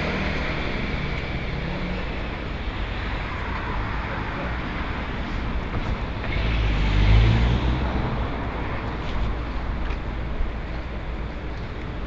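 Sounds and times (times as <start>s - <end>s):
street traffic noise: 0.0s - 12.0s
vehicle passing close by: 6.4s - 8.3s.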